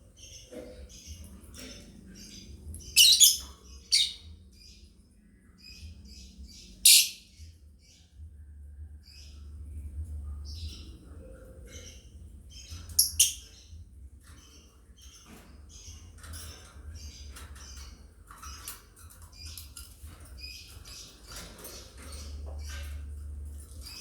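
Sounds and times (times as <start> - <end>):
lovebirds chirping: 0.0 - 8.2, 9.0 - 17.9.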